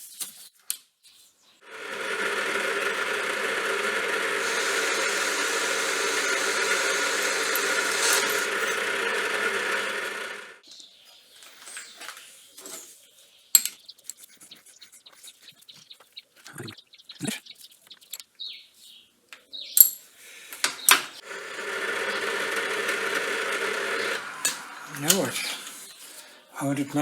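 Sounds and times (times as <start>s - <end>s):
lathe running: 1.6s - 10.6s, 21.2s - 25.9s
tools clicking and tapping: 13.6s - 14.3s.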